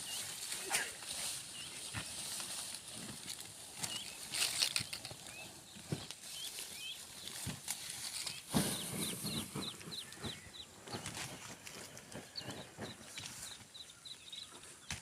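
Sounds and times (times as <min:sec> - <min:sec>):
corn plants rustling: 0:00.0 - 0:14.0
corn ears snapping: 0:01.9 - 0:05.4.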